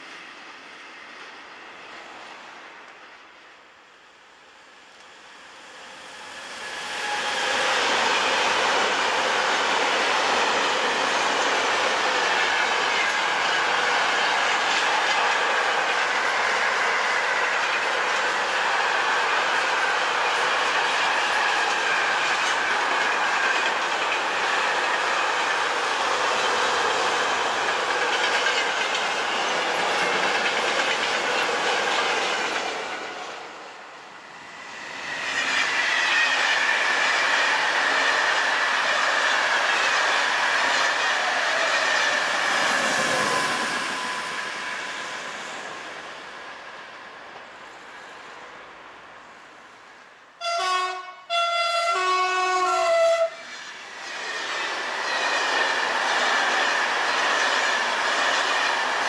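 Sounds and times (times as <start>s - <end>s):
second train passing: 0.0s - 59.0s
high wheel squeal: 34.5s - 39.6s, 40.6s - 45.1s.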